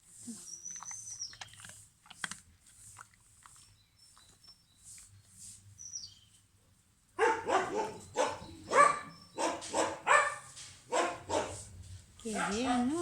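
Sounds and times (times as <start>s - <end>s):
faint bird chirps: 0.3s - 1.6s, 3.6s - 6.4s.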